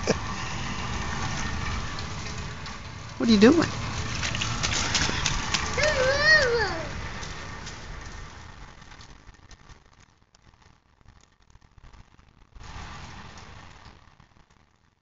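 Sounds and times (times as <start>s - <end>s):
tyres hissing on wet road: 0.0s - 8.8s, 12.6s - 13.9s
light rain falling: 0.0s - 15.0s
scattered drips: 0.1s - 8.4s.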